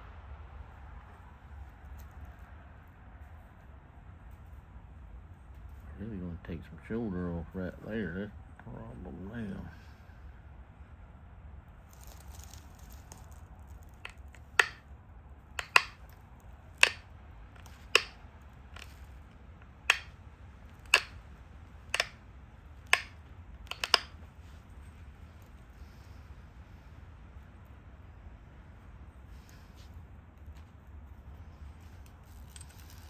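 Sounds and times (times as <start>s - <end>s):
stone flakes snapping off: 14.0s - 14.8s, 15.6s - 16.0s, 17.6s - 18.1s, 19.9s - 20.1s, 20.9s - 21.2s, 22.0s - 22.2s, 22.9s - 23.1s, 23.7s - 24.1s.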